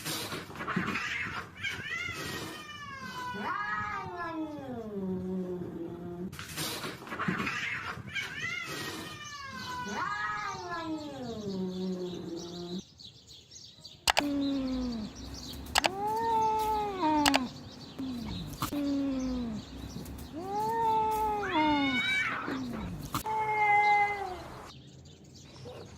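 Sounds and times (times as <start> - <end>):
cat hissing: 0.0 - 3.7, 6.4 - 11.4, 14.2 - 24.7
cats yowling: 0.7 - 5.8, 7.2 - 12.8, 14.2 - 24.7
sharp clicks: 14.1 - 18.9.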